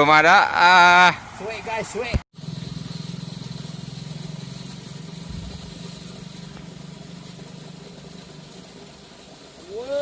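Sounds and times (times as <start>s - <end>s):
small engine running: 2.3s - 10.0s.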